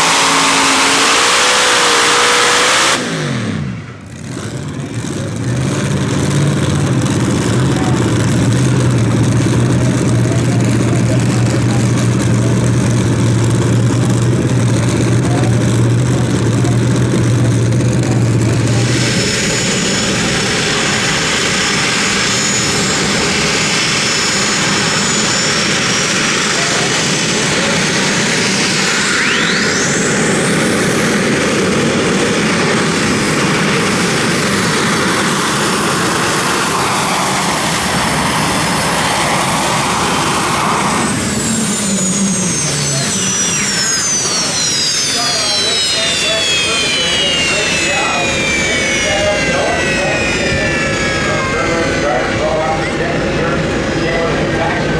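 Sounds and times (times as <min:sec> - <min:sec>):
tractor engine roaring: 0:00.0 - 0:54.9
rising whistle: 0:27.6 - 0:30.7, 0:36.8 - 0:53.0.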